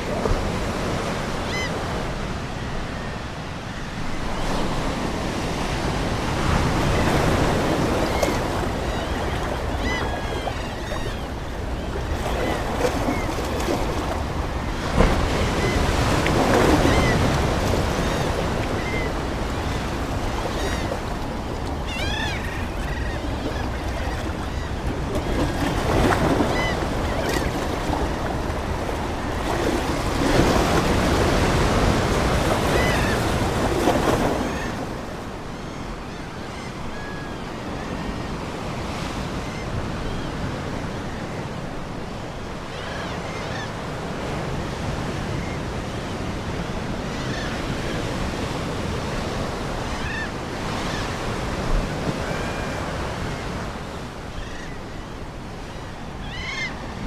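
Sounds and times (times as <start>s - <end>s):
ocean waves washing ashore: 0.0s - 57.0s
seagulls calling: 1.3s - 5.0s, 6.3s - 38.1s, 52.1s - 57.0s.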